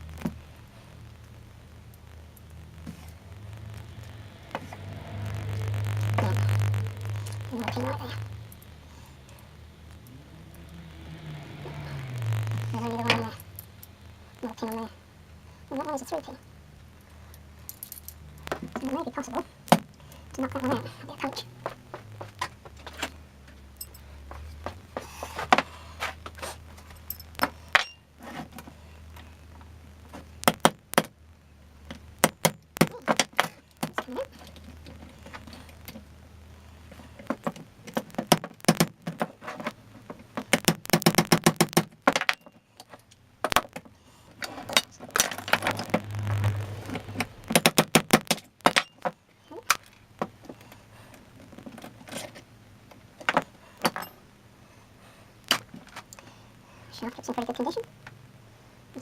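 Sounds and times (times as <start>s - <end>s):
low hum: 0.0s - 38.0s, 42.3s - 47.6s.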